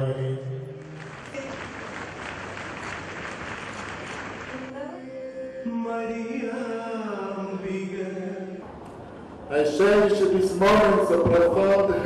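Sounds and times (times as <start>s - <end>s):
crowd noise: 0.0s - 5.2s.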